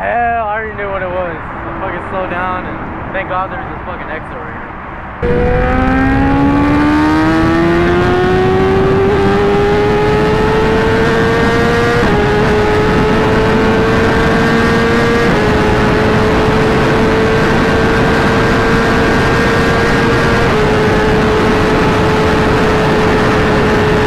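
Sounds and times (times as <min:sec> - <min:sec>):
wind rush: 0:00.8 - 0:24.0
motorcycle engine accelerating: 0:05.2 - 0:24.0.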